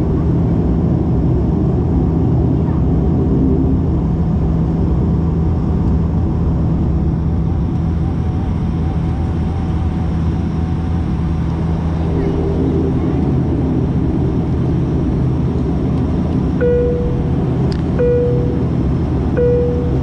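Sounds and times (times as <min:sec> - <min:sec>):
propeller drone in cabin: 0:00.0 - 0:20.0.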